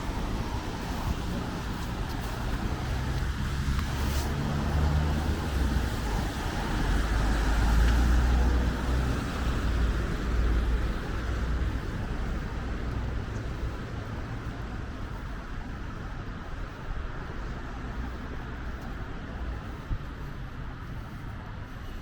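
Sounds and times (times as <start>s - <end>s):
vehicle passing close: 0.0s - 13.7s.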